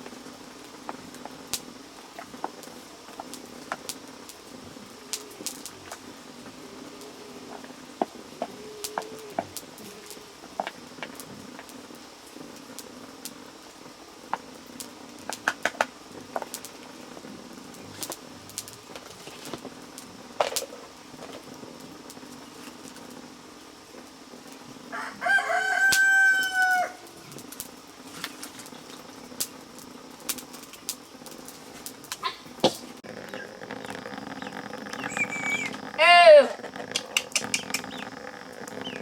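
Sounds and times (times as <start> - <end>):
rooster crowing: 24.9 - 27.2.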